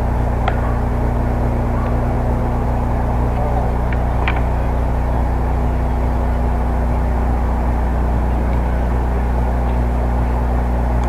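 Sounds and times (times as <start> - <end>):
background rumble: 0.0 - 11.0
steady low hum: 0.0 - 11.0.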